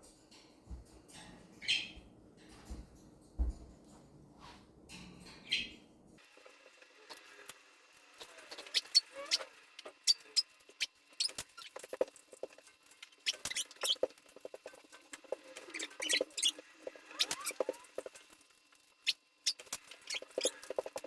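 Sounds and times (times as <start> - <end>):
parrot squeaky chirps: 1.6 - 2.0, 5.4 - 5.8, 8.2 - 12.0, 13.2 - 14.1, 15.6 - 18.0, 19.0 - 21.0.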